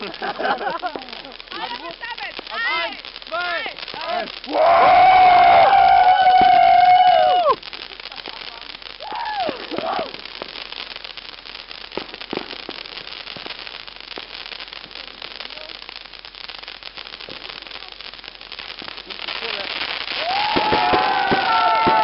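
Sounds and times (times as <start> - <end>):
fireworks crackling and popping: 0.0 - 22.0
people whooping: 4.0 - 7.7, 9.0 - 10.2, 20.1 - 22.0.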